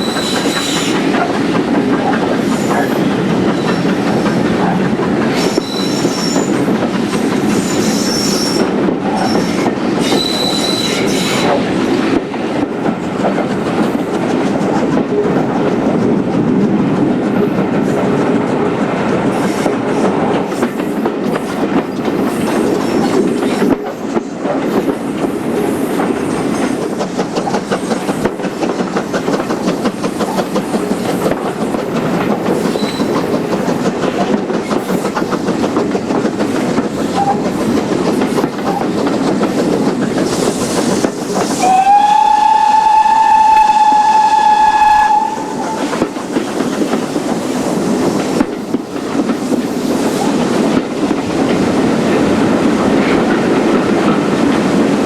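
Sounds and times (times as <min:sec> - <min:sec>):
train wheels clattering on rails: 0:00.0 - 0:55.0
steam whistle: 0:41.6 - 0:46.0.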